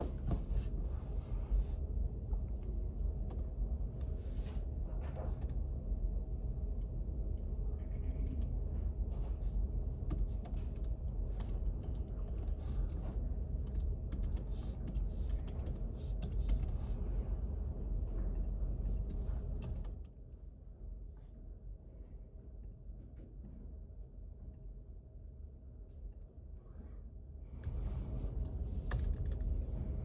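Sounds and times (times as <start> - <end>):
faint hum: 0.0 - 30.0
low background rumble: 0.0 - 30.0
computer keyboard typing: 13.6 - 16.7.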